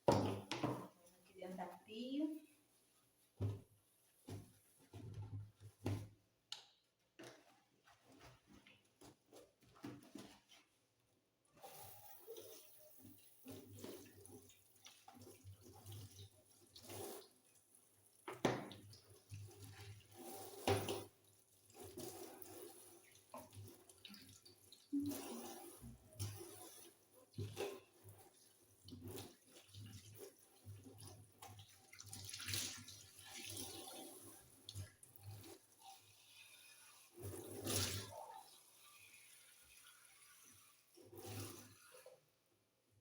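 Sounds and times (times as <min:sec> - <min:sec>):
knocks and clunks in sink: 0:00.0 - 0:01.0, 0:03.4 - 0:06.2, 0:18.3 - 0:18.8
water running from tap: 0:11.6 - 0:42.2.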